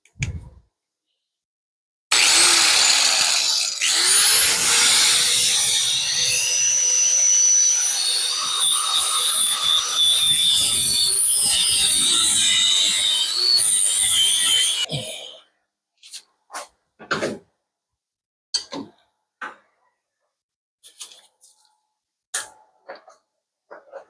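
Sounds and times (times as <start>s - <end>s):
power tool motor whine: 2.1s - 14.9s.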